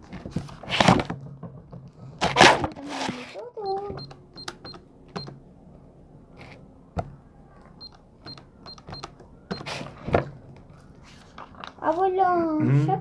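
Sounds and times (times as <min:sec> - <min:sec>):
light clicks and knocks: 0:00.0 - 0:12.1
short electronic beeps: 0:03.6 - 0:05.4, 0:07.8 - 0:09.8.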